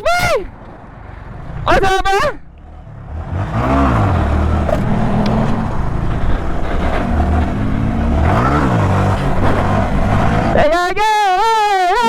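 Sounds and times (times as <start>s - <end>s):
mini bike engine revving: 2.9s - 10.6s.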